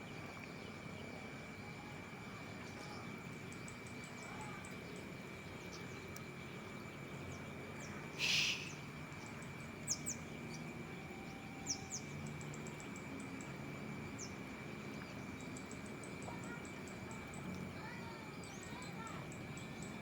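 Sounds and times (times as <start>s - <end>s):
high insect drone: 0.0s - 20.0s
brief hiss: 8.2s - 8.8s
sharp bird chirps: 8.2s - 8.9s.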